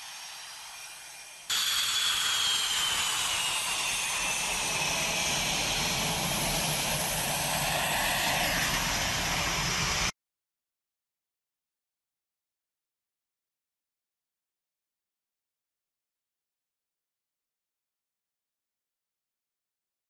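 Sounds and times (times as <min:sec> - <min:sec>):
jet engines roaring with whine: 0:00.0 - 0:10.1.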